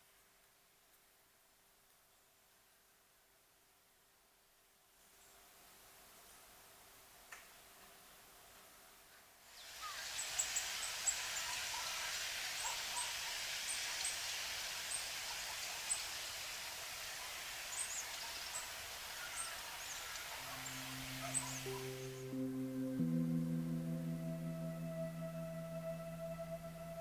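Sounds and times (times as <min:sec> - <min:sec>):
steady hiss: 0:09.4 - 0:27.0
bird chirps and calls: 0:09.6 - 0:22.3
soft music with held tones: 0:20.3 - 0:27.0.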